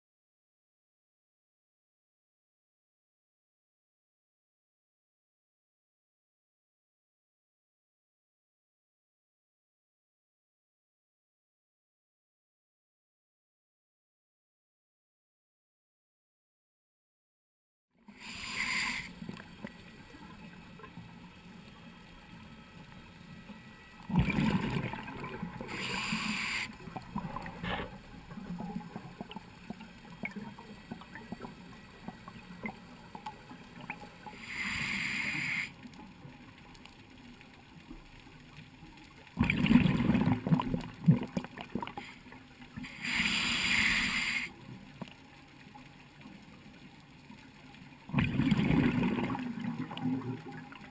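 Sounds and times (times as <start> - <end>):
low steady hum: 18.3 - 43.1
diver's exhaled bubbles gurgling: 24.0 - 31.6, 39.4 - 42.0, 48.1 - 50.9.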